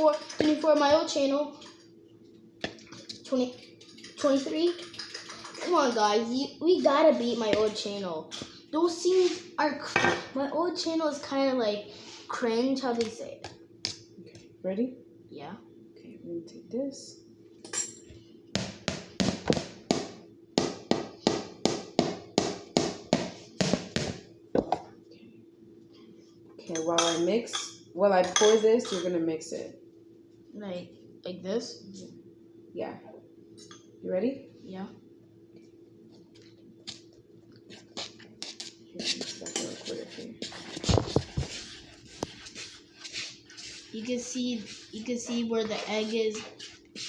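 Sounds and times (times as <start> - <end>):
utensil scraping a mixing bowl: 38.0 - 47.0.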